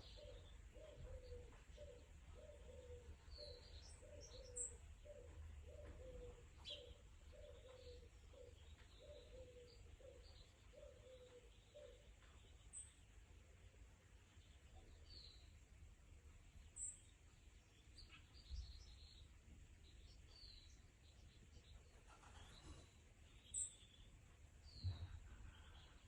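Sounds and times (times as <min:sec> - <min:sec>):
dove cooing: 0:00.0 - 0:12.1
small birds chirping faintly: 0:00.0 - 0:26.0.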